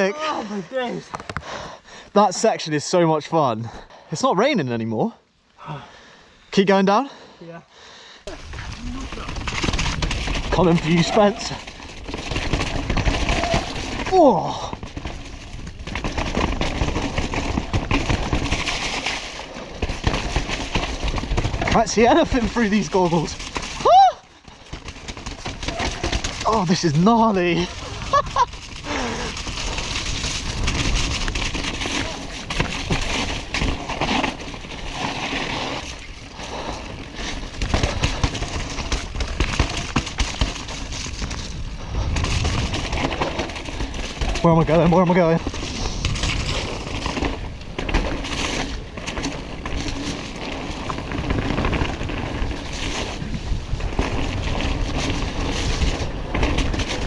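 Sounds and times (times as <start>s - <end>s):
mountain bike rattling: 8.2s - 57.0s
tyres running through mud: 8.3s - 57.0s.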